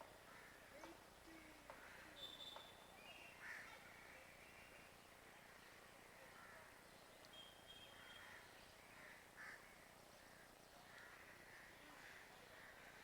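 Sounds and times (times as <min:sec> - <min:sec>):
faint distant bird calls: 0:00.0 - 0:13.0
thin whistle-like tone: 0:02.2 - 0:02.8, 0:07.3 - 0:08.0.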